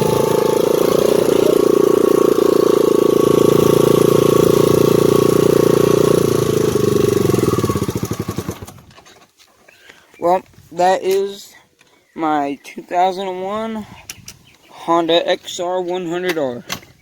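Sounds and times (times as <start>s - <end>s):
motorcycle engine at high revs: 0.0s - 8.9s.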